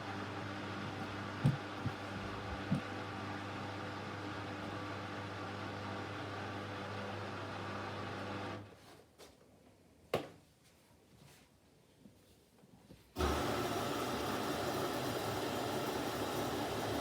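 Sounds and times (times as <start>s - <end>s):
water filling washing machine: 13.2s - 17.0s.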